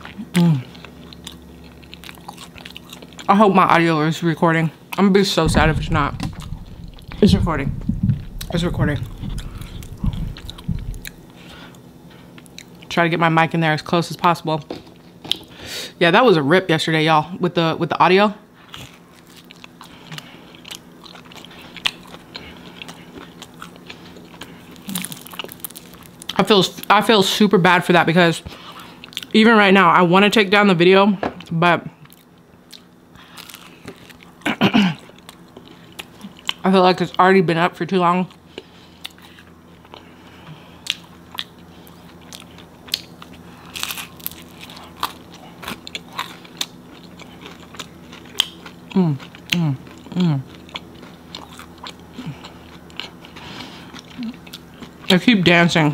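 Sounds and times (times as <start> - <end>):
chewing pizza: 0.0 - 15.6, 17.9 - 30.7, 31.4 - 37.4, 38.0 - 55.9
faint steady hum: 0.0 - 55.9.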